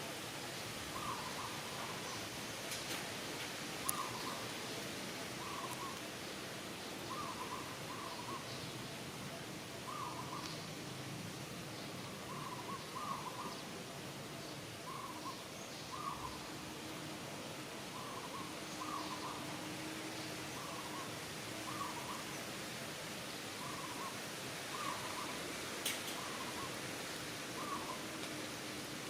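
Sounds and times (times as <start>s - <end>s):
steady background hiss: 0.0s - 29.0s.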